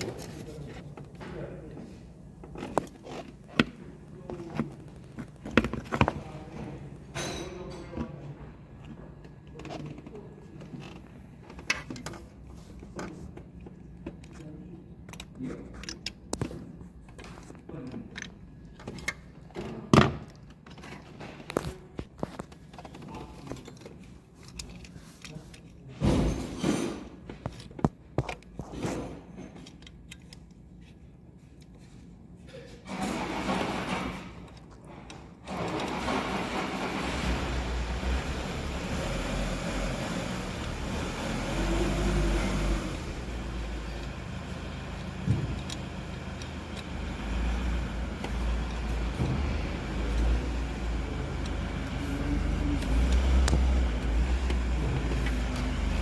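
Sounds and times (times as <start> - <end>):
rumbling vehicle noise: 35.6 - 56.0.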